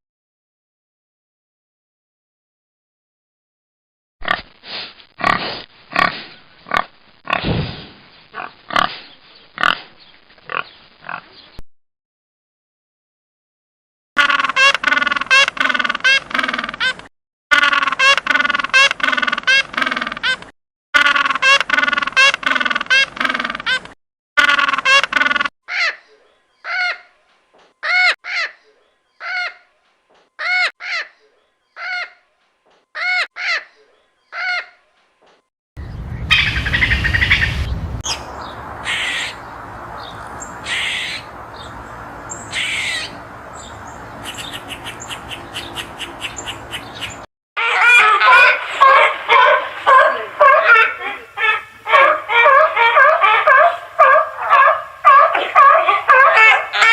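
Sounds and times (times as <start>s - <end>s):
animal calling: 40.6s - 41.3s, 42.3s - 43.2s, 44.2s - 56.9s.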